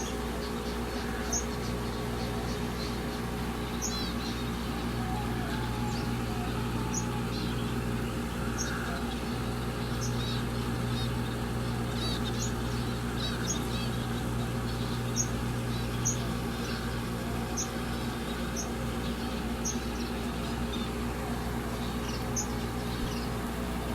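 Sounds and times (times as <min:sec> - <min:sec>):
small birds chirping: 0:00.0 - 0:23.9
steady low hum: 0:00.0 - 0:23.9.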